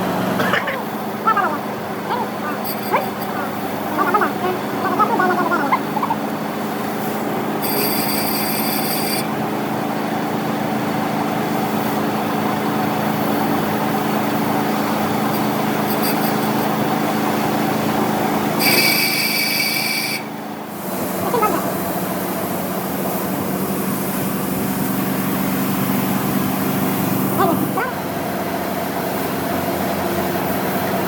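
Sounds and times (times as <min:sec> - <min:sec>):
workshop machine humming: 0:00.0 - 0:31.0
high-pitched whine: 0:02.4 - 0:06.3, 0:07.6 - 0:09.3, 0:15.0 - 0:17.3, 0:18.6 - 0:20.4.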